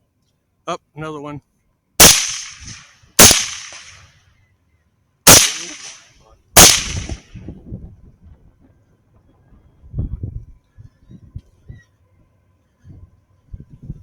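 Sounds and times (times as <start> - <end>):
rifle shots echoing: 2.0 - 4.0, 5.3 - 7.4.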